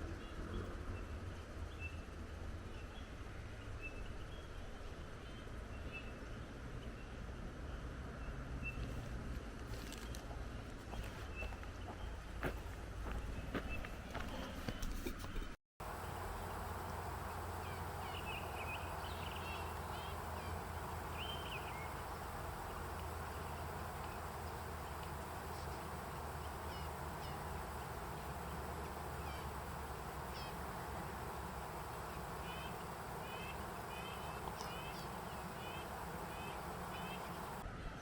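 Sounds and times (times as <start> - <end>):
steady wind: 10.6 - 38.0
small birds chirping: 15.8 - 37.6.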